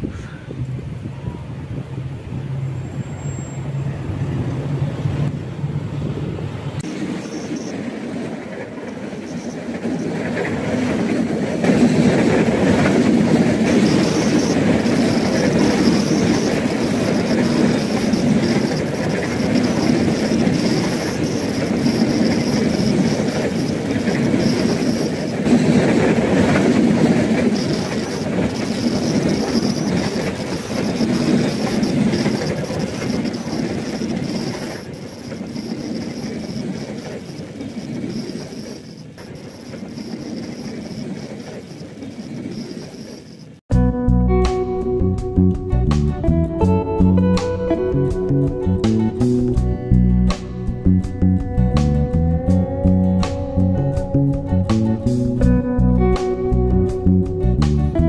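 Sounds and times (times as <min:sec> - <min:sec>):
locomotive engine hum: 0:00.0 - 0:43.6
high wheel squeal: 0:02.5 - 0:05.3, 0:06.7 - 0:43.6
wagon wheels clattering on rails: 0:06.8 - 0:43.6.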